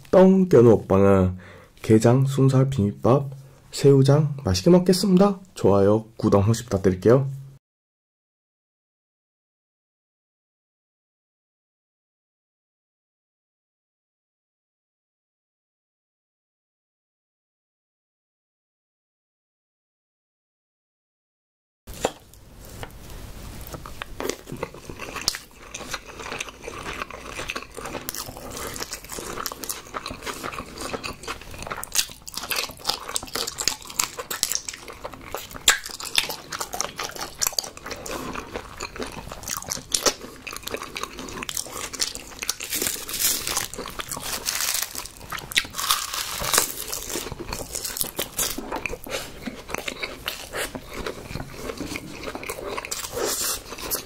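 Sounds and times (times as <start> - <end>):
crunchy crackles and clicks: 23.6 - 54.0
person chewing crunchy food: 23.6 - 54.0.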